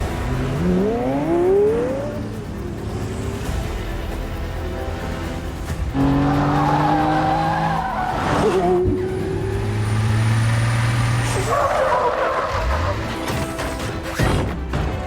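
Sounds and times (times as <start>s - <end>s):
car engine revving high: 0.0s - 13.3s
tyres squealing: 6.3s - 9.9s, 10.8s - 14.2s.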